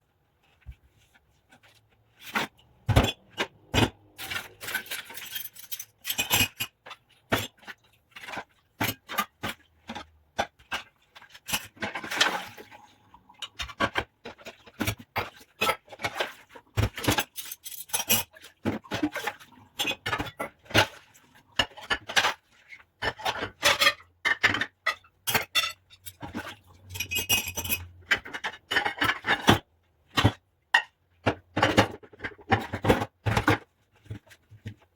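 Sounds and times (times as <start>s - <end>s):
dishes and glassware clinking: 16.9s - 18.3s, 23.0s - 29.6s.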